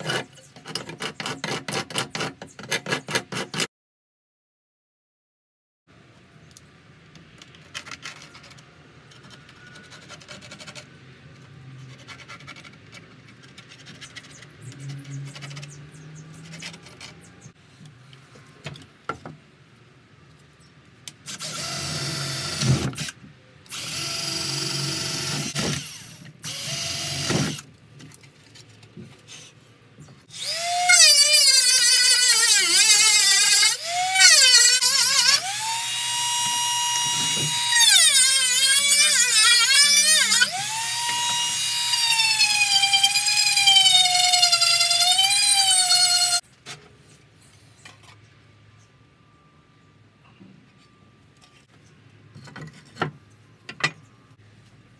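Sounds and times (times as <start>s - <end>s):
rotary tool cutting wood: 0.0s - 3.7s, 21.3s - 27.6s, 30.3s - 46.4s
cordless drill boring into wood: 21.3s - 23.1s, 23.7s - 27.6s, 30.3s - 46.4s.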